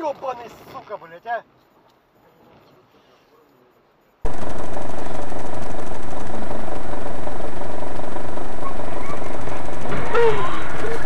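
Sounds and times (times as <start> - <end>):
engine running with rattle: 4.3 - 11.0.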